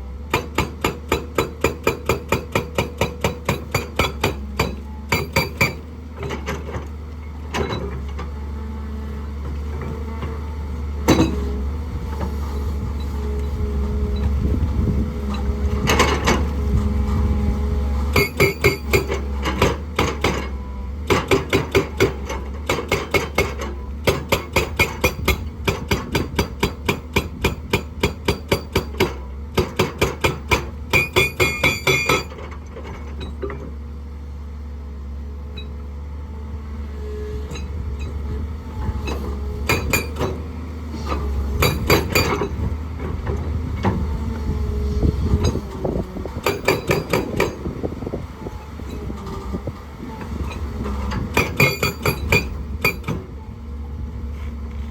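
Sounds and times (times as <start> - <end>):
excavator diesel engine running: 0.0 - 54.9
hydraulic rock breaker pounding: 0.3 - 8.3, 11.0 - 11.6, 14.2 - 17.2, 18.0 - 33.7, 38.8 - 53.5.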